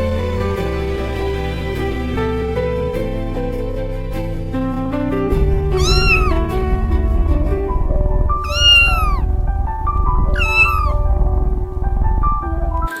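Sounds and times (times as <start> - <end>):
soft background music: 0.0 - 13.0
cat meowing: 5.7 - 6.5, 8.4 - 9.4, 10.3 - 11.2.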